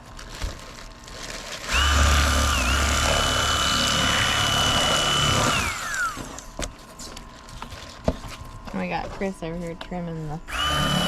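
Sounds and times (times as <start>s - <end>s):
electric knife motor whine: 1.7s - 6.6s, 10.5s - 11.0s.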